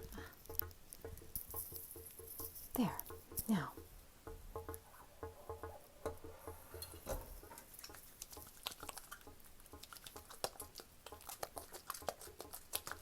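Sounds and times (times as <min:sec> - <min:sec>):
hands lathering soap: 0:06.8 - 0:13.0.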